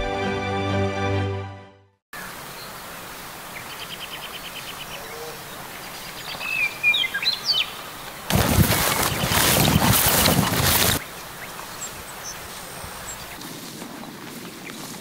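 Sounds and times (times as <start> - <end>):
outdoor background hiss: 2.2 - 8.4, 11.0 - 14.9
small birds calling: 3.6 - 8.3.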